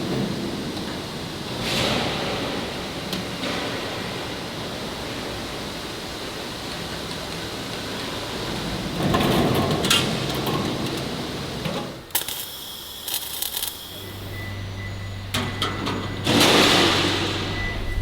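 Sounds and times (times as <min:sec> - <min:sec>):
factory noise: 0:00.0 - 0:18.0
steady low hum: 0:12.9 - 0:18.0.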